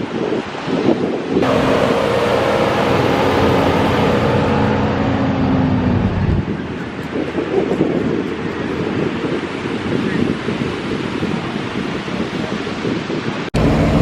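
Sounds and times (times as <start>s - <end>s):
wind on microphone: 0.0s - 14.0s
truck engine running: 1.4s - 7.4s, 13.6s - 14.0s.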